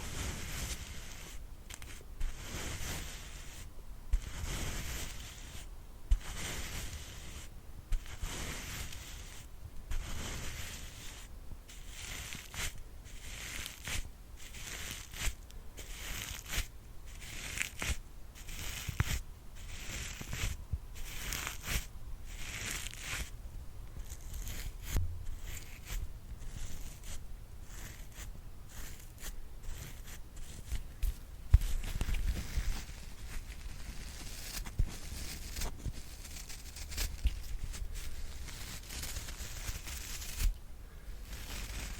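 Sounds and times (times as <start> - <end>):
scratchy brush strokes: 0.0 - 41.9
low handling bumps: 25.0 - 25.3.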